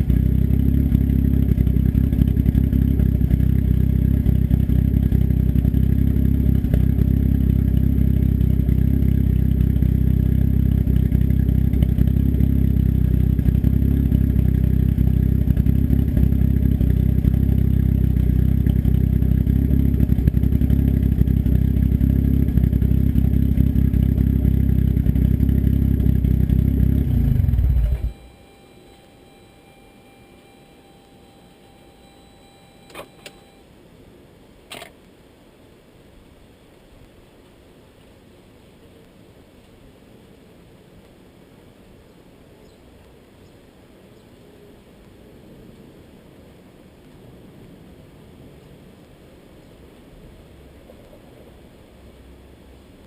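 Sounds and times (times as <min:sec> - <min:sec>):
turbocharged engine running: 0:00.0 - 0:32.2.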